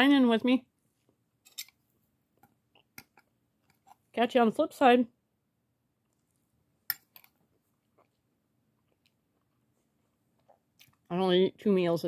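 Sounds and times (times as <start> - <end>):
quiet chewing: 7.5 - 11.1.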